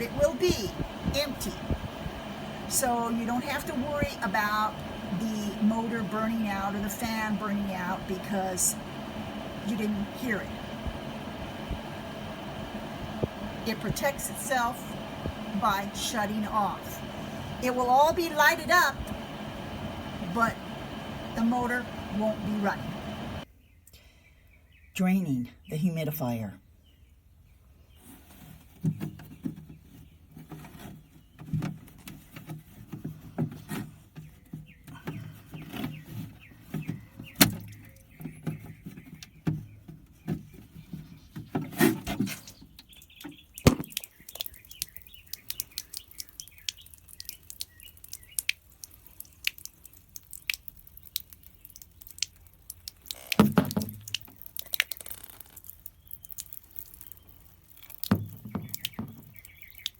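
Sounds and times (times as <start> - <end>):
water dripping: 42.7 - 59.9
plastic clicks and knocks: 43.6 - 44.1, 53.2 - 55.1.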